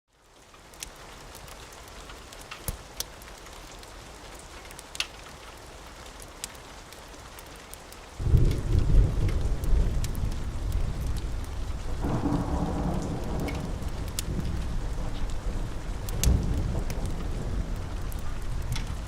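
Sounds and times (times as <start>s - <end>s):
steady rain hiss: 0.1s - 19.0s
sharp crackles and pops: 0.2s - 19.0s
thunder rumbling: 8.2s - 19.0s.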